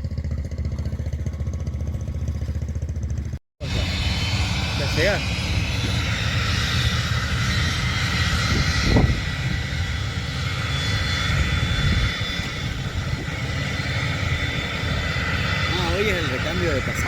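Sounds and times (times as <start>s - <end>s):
aircraft engine whine: 0.0s - 17.0s.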